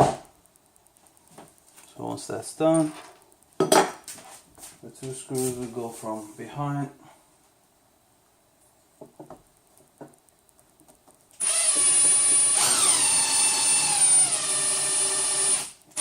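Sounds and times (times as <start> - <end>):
power drill driving screw: 11.4 - 16.0.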